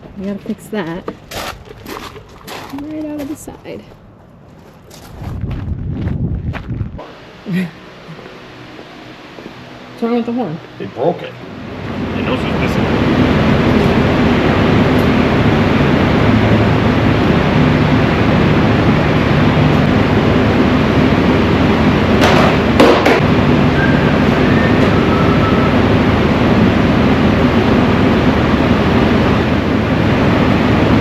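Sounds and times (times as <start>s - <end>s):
truck engine and road noise: 0.0s - 31.0s
sharp knocks: 22.2s - 23.2s.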